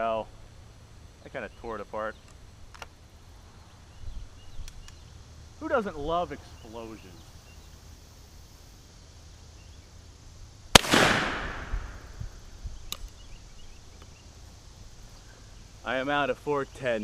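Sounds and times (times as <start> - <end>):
shotgun shot: 10.7 - 12.2.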